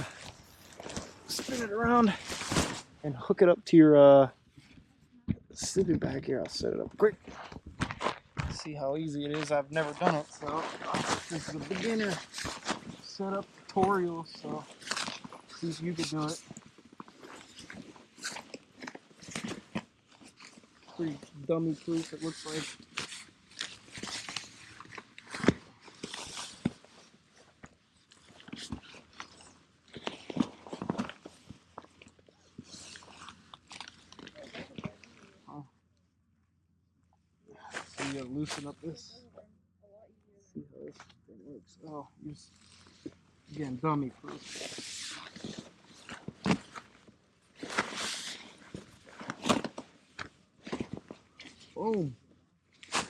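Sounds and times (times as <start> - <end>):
nylon sleeping bag rustling: 0.0 - 3.0.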